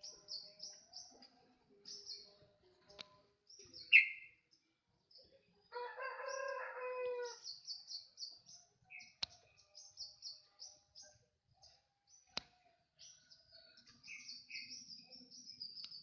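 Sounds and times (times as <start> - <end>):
songbird chirping: 0.0 - 16.0
rooster crowing: 5.7 - 7.4.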